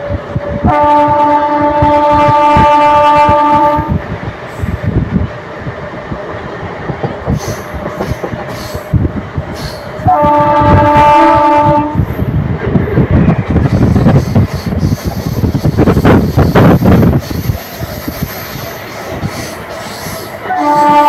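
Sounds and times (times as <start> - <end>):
running train rumble and clatter: 0.0 - 21.0
train horn blasts: 0.6 - 4.0, 10.0 - 12.0, 20.4 - 21.0.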